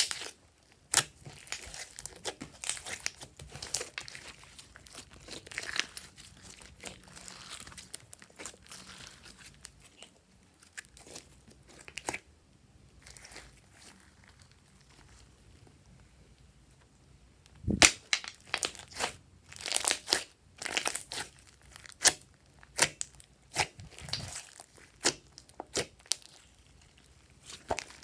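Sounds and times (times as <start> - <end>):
slime squeezed by hand: 22.8 - 26.3.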